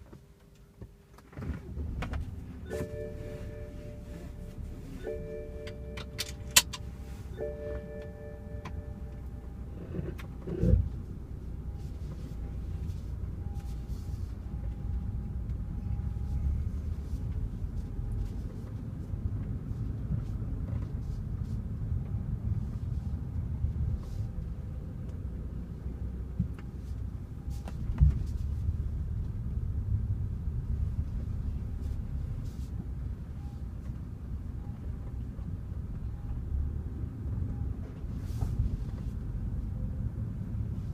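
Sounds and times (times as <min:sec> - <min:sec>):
car engine running: 0:01.7 - 0:18.7
faint whine: 0:02.0 - 0:18.4
chime tones: 0:02.7 - 0:09.4.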